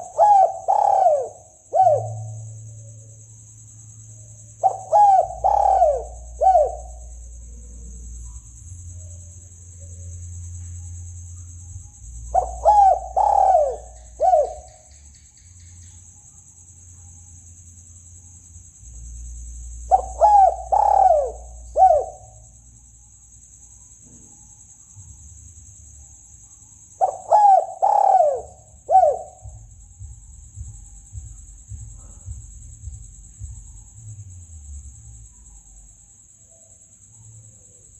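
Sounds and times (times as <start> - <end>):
dove cooing: 0.0 - 2.9, 4.6 - 8.0, 12.2 - 15.0, 19.9 - 22.4, 27.0 - 29.7.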